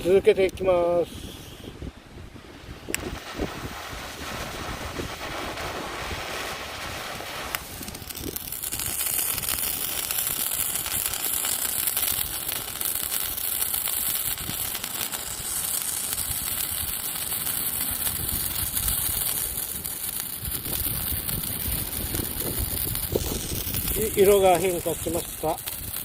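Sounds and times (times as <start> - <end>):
firework sparks hissing and crackling: 0.0 - 26.0.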